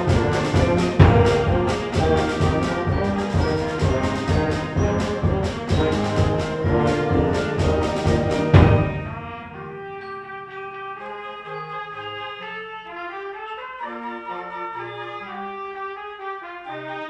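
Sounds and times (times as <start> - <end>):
sharp drum strikes: 0.0 - 9.8
school band playing brass: 0.0 - 17.0.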